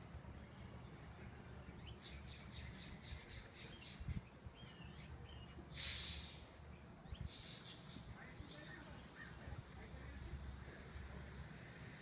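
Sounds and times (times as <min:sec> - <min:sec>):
harsh hissy sound: 0:05.7 - 0:06.6
small bird chirps: 0:06.2 - 0:09.4.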